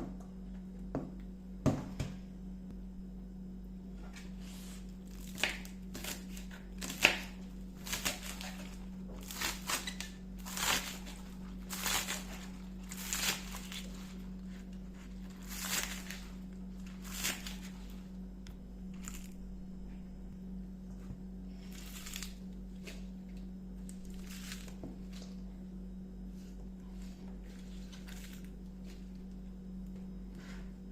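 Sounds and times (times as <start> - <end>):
low electrical hum: 0.0 - 30.9
scraping and rustling strokes: 4.0 - 5.2, 26.3 - 29.2.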